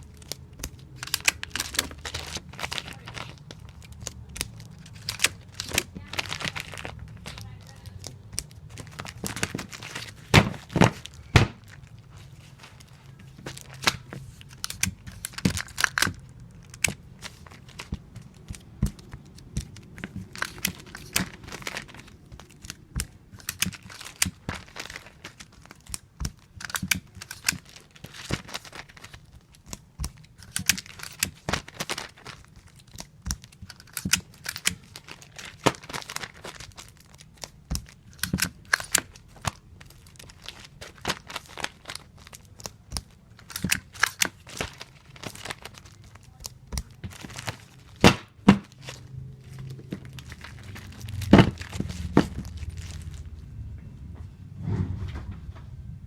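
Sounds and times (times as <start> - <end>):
comic books crinkling: 0.0 - 53.5.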